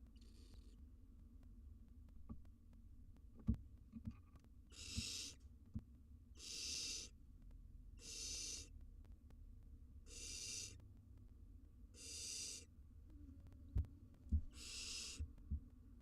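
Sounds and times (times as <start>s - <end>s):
owl nestlings hissing: 0.1s - 0.8s, 4.7s - 5.4s, 6.4s - 7.2s, 8.0s - 8.7s, 10.1s - 10.8s, 11.9s - 12.7s, 14.5s - 15.3s.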